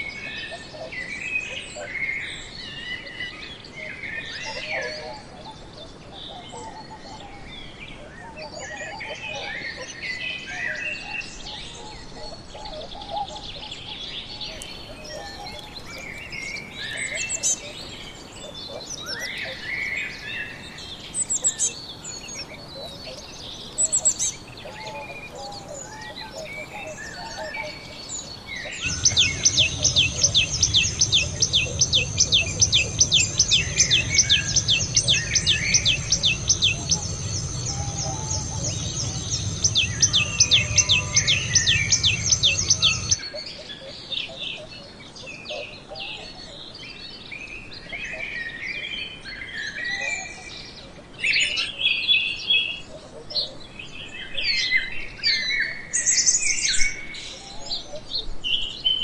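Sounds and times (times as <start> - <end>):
small songbirds chirping: 0.0 - 59.0
low steady hum: 14.5 - 43.3.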